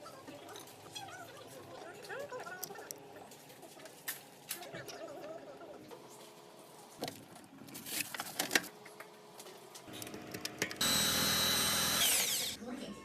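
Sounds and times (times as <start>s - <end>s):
electric drill whining: 10.8s - 12.6s.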